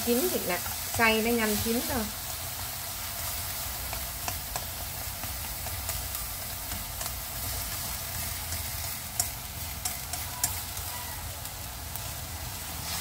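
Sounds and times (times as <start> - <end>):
meat sizzling in a frying pan: 0.0 - 13.0
chopsticks clicking against pan: 3.8 - 7.8, 8.4 - 10.9.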